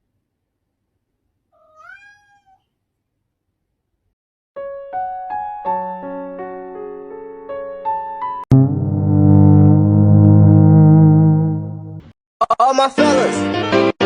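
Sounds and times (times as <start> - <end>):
cat meowing: 1.5 - 2.8
electric piano music: 4.6 - 11.0.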